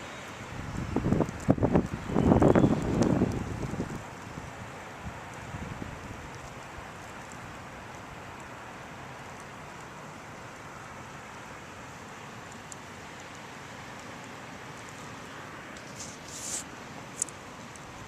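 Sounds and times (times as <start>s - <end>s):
snowstorm hiss: 0.0s - 18.0s
high rustle: 14.8s - 18.0s.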